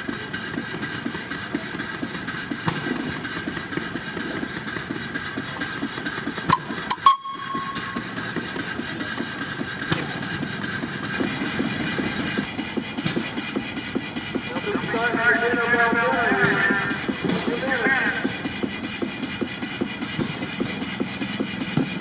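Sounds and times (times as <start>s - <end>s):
stationary engine running: 0.0s - 22.0s.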